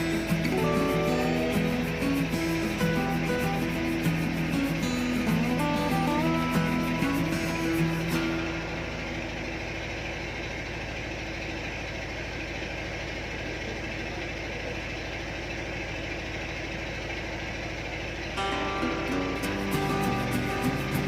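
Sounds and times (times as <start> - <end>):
music: 0.0 - 9.7, 18.4 - 21.0
boat engine idling: 0.0 - 21.0.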